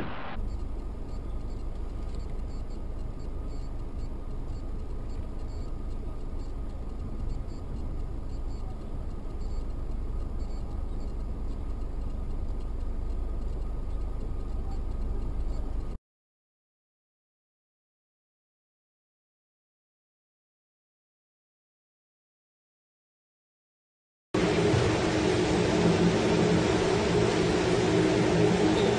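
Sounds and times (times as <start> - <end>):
faint high ticks: 0.4 - 15.9
car engine and road noise: 24.4 - 28.9.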